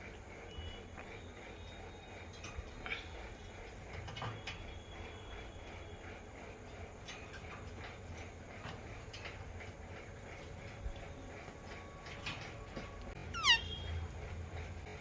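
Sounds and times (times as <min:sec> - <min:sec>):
parakeet call falling in pitch: 0:13.4 - 0:13.7.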